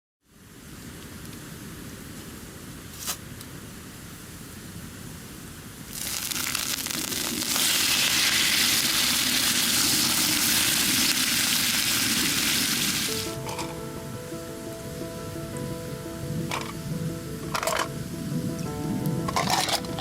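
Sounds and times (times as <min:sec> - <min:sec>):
food sizzling in a pan: 0:05.9 - 0:13.7
music: 0:13.1 - 0:20.0.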